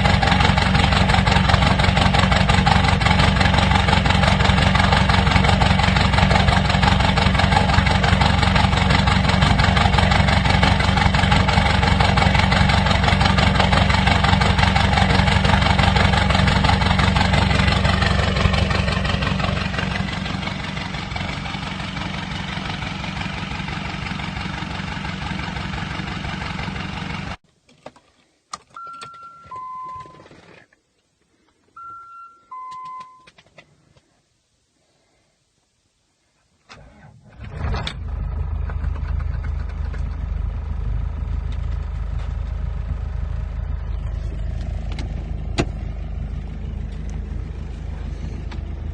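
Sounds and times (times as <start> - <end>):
diesel car engine running: 0.0 - 27.4, 36.7 - 48.9
car electronic two-note chime: 28.8 - 30.3, 31.8 - 33.3.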